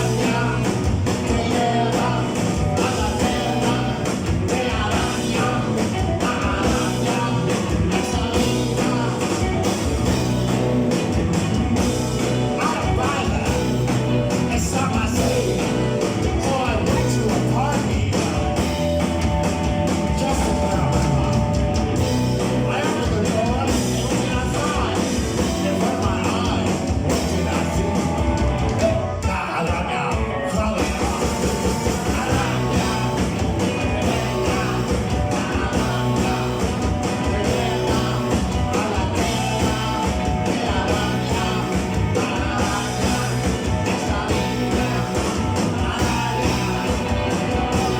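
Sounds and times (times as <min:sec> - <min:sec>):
person singing: 0:00.0 - 0:09.7, 0:22.5 - 0:28.0, 0:28.7 - 0:47.9
drums: 0:00.0 - 0:47.9
electric guitar: 0:00.0 - 0:47.9.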